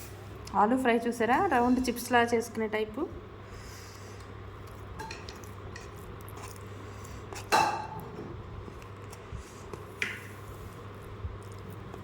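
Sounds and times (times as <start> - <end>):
dishes clinking: 5.0 - 5.4.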